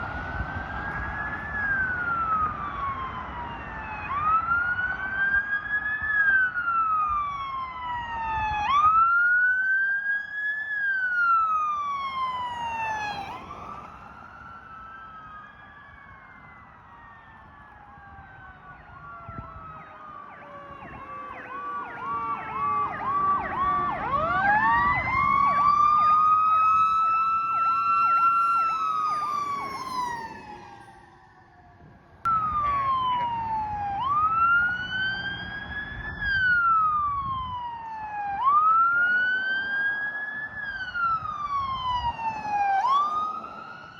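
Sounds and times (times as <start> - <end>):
wailing siren: 0.0 - 43.9
yelping siren: 0.2 - 43.9
siren tone gliding down: 11.1 - 43.9
siren winding up to high pitch: 27.7 - 31.7.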